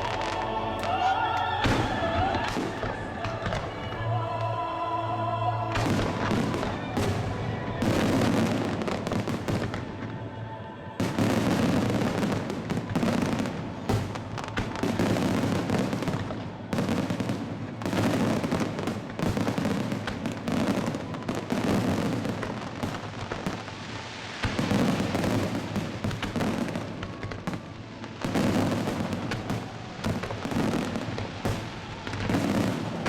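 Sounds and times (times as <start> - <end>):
music playing: 0.0 - 19.7
fireworks bursting: 0.0 - 33.0.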